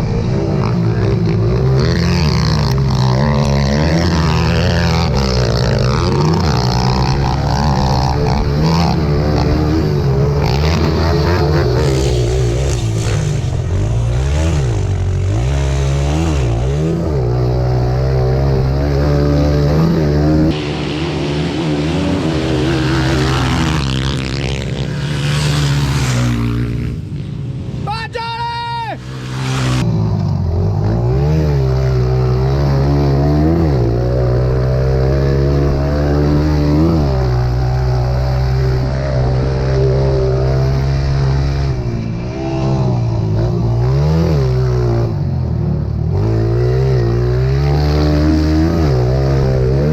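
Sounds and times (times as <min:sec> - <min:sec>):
pit bike engines revving: 0:00.0 - 0:49.9.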